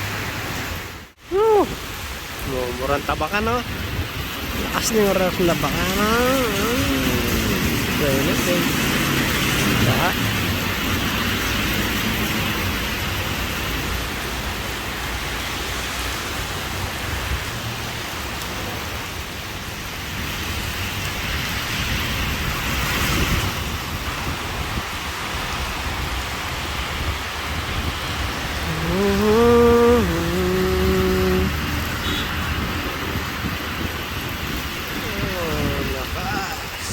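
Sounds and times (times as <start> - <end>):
heavy rain falling: 0.0 - 36.9.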